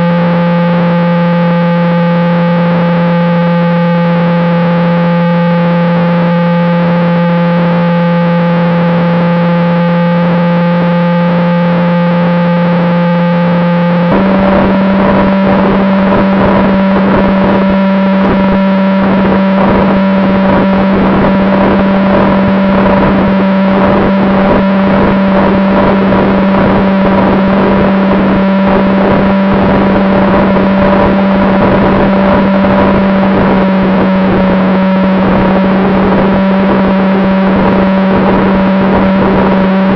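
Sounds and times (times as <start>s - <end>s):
model jet fan whine: 0.0s - 39.9s
rushing air: 13.4s - 39.9s.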